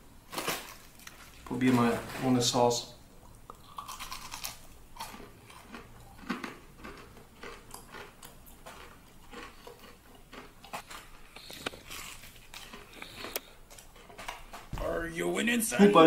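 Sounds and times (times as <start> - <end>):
crunchy bite and chewing: 3.2 - 14.7.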